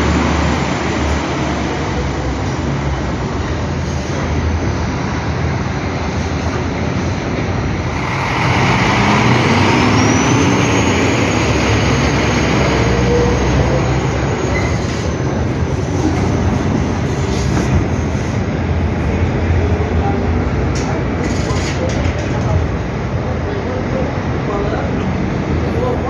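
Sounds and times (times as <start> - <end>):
bus running with rising whine: 0.0 - 20.7.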